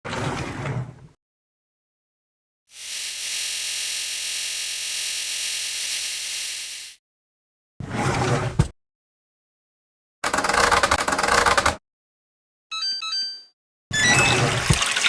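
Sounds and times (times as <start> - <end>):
electronic beeps: 12.7 - 14.5.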